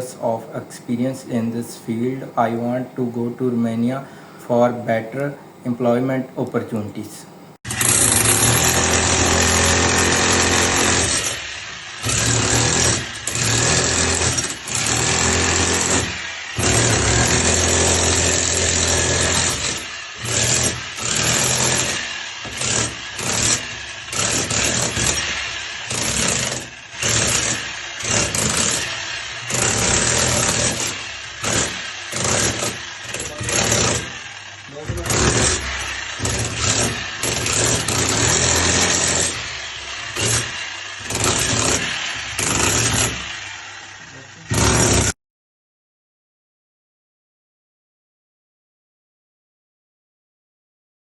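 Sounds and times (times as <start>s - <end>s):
electric power tool motor hum: 7.7s - 45.2s.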